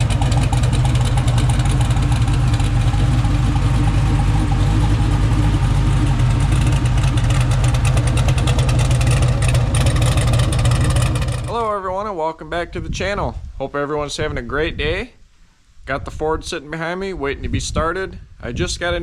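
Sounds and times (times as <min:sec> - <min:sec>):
pickup truck engine idling: 0:00.0 - 0:11.6.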